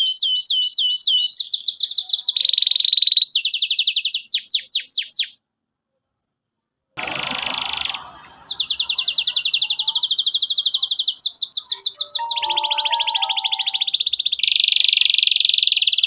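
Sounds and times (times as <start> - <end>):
canary singing trills: 8.5 - 14.1.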